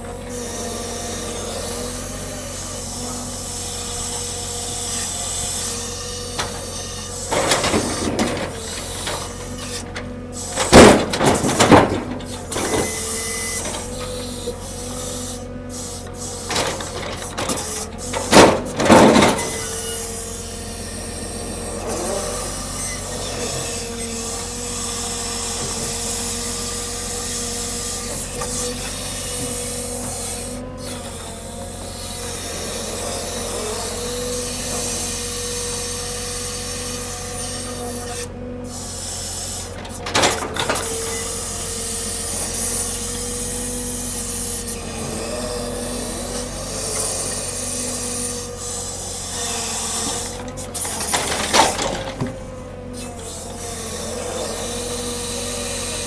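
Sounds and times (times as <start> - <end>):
machinery whining: 0.0 - 56.0
loud metal clanks: 7.4 - 13.0.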